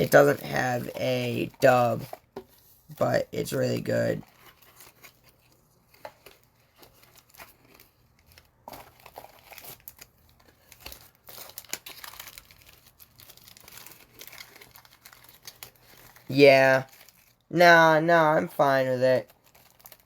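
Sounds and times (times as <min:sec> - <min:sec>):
wrapper crinkling and tearing: 0:03.7 - 0:17.5, 0:19.1 - 0:20.0.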